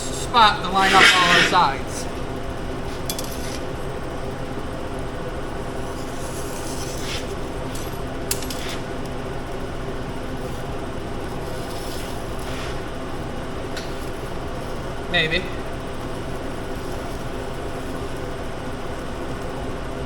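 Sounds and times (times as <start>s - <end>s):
fan humming: 0.0s - 20.0s
marker scraping on table: 0.8s - 1.8s, 5.9s - 7.9s, 11.5s - 12.9s.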